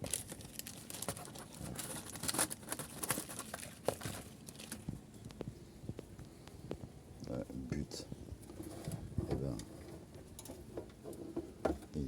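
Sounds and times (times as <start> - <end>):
plastic packaging crinkling: 0.0 - 5.0.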